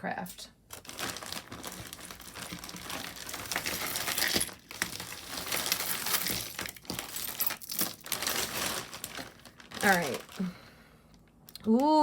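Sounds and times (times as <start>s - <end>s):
jewelry clinking and rattling: 1.0s - 10.4s.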